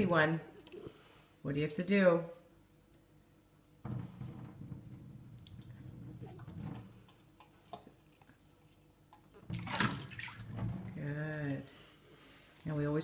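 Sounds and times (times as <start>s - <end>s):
tap running water into sink: 3.9s - 7.1s.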